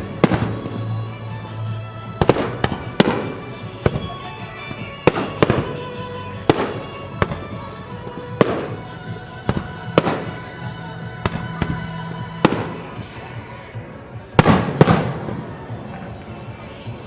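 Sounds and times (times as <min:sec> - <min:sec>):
fireworks bangs: 0:00.0 - 0:01.0, 0:02.0 - 0:17.0
music playing: 0:00.0 - 0:17.0.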